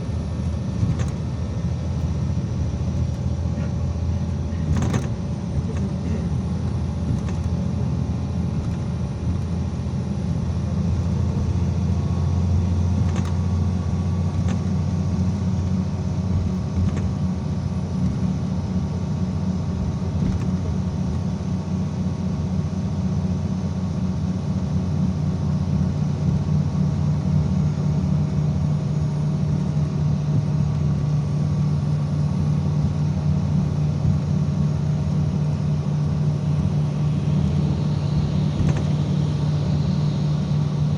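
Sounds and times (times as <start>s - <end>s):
bus engine and road rumble: 0.0s - 40.9s.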